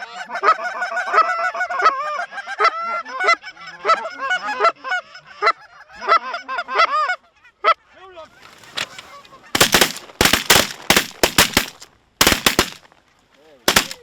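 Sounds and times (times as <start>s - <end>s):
shotgun blasts: 9.6s - 12.8s, 13.7s - 14.0s.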